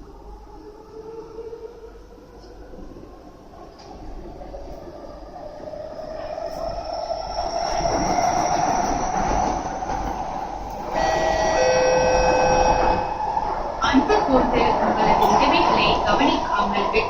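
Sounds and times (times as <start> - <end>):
metro train running noise: 0.0 - 17.0
rising train motor whine: 0.0 - 17.0
steady high tones: 6.6 - 17.0.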